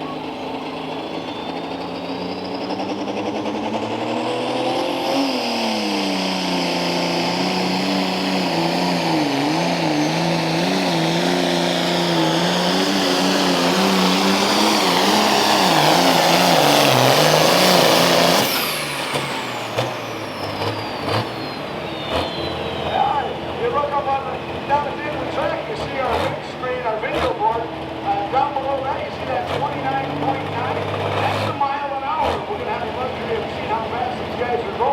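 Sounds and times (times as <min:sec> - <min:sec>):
turbo whine winding down: 0:00.0 - 0:25.7
tractor engine working hard: 0:00.0 - 0:34.9.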